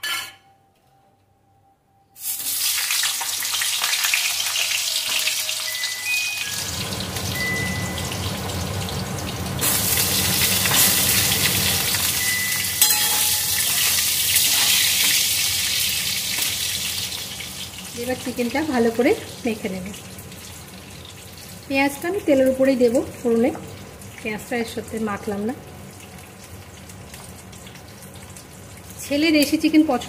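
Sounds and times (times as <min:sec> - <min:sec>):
potatoes sizzling in oil: 0:02.2 - 0:30.0.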